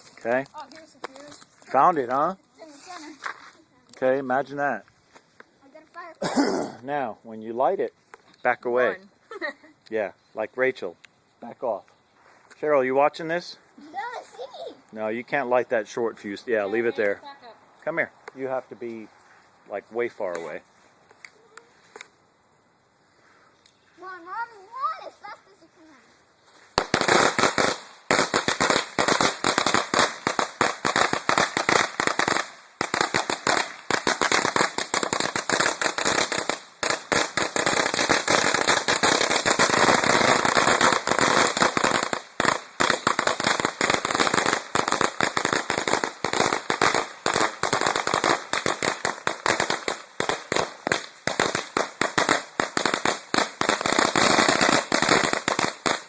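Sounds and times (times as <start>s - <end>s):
firecrackers banging: 26.8s - 56.0s.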